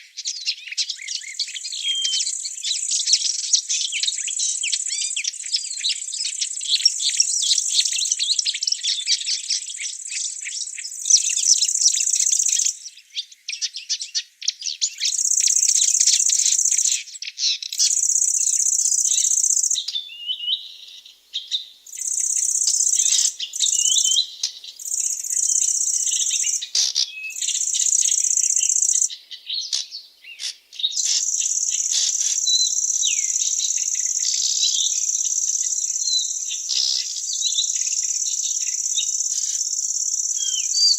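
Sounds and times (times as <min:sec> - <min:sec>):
birds chirping: 0:00.6 - 0:05.2, 0:14.7 - 0:40.9
insects trilling: 0:01.0 - 0:12.8, 0:15.0 - 0:17.1, 0:17.7 - 0:29.8, 0:30.4 - 0:40.9.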